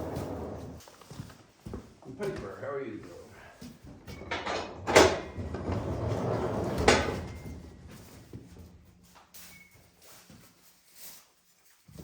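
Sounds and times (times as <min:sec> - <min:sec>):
sliding door rumbling: 0:00.0 - 0:00.8, 0:04.5 - 0:07.4.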